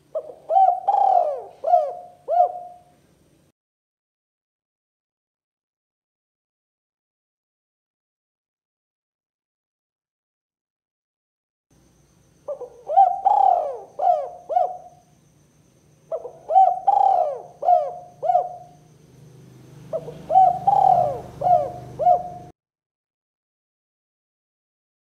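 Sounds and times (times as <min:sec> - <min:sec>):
dove cooing: 0:00.0 - 0:03.0, 0:12.5 - 0:15.1, 0:16.1 - 0:19.0, 0:19.6 - 0:22.5.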